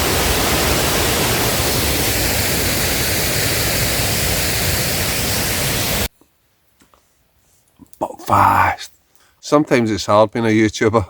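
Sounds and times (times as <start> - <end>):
heavy rain: 0.0 - 6.1
waterfall roaring: 0.0 - 6.1.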